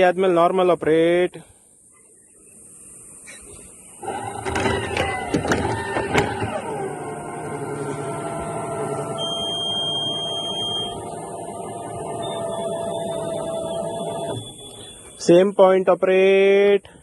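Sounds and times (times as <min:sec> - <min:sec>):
electric motor whine: 0:04.0 - 0:15.2
thin high tone: 0:07.8 - 0:15.4.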